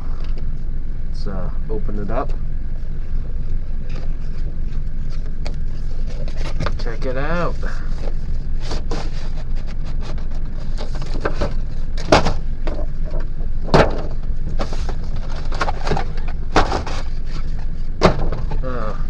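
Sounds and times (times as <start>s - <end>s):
steady low rumble: 0.0s - 19.0s
packaging rustling and scraping: 4.0s - 12.9s, 14.5s - 18.7s.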